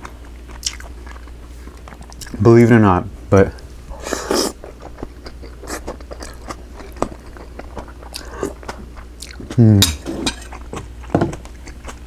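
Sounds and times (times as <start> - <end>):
chewing and mouth smacks: 0.0 - 2.4, 3.9 - 9.6, 10.5 - 12.0.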